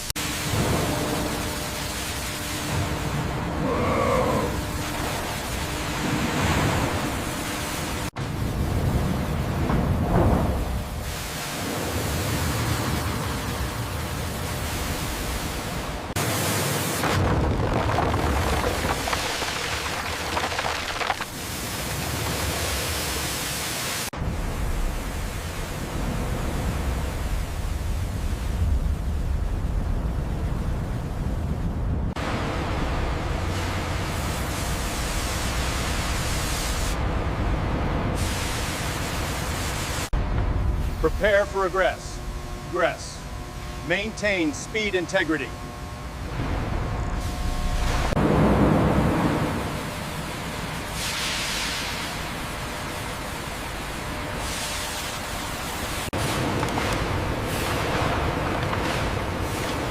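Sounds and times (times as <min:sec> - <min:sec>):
water jets hissing: 0:10.3 - 0:17.0
deep rumble: 0:24.2 - 0:36.2, 0:40.1 - 0:43.8, 0:45.5 - 0:50.7
high-pressure water jet spraying: 0:33.5 - 0:37.0, 0:38.2 - 0:40.1, 0:49.5 - 0:59.9.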